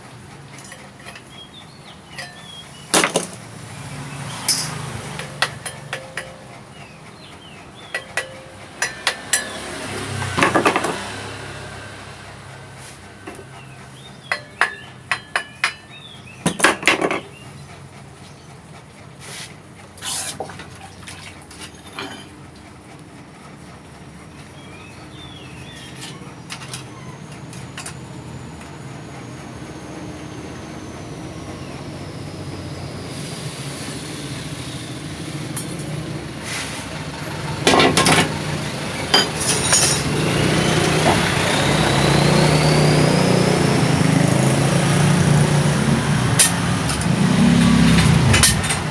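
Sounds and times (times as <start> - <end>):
small engine running: 0.0 - 15.2, 24.6 - 48.9
metal clinks and knocks: 4.3 - 6.6, 7.9 - 11.1, 39.0 - 40.4, 46.4 - 48.9.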